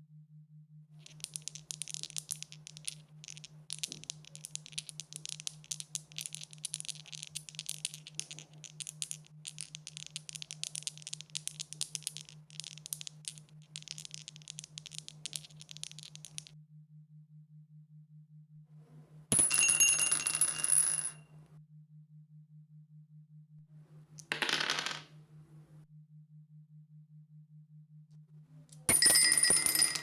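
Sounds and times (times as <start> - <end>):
dice rattling: 1.0 - 16.5, 24.2 - 25.2.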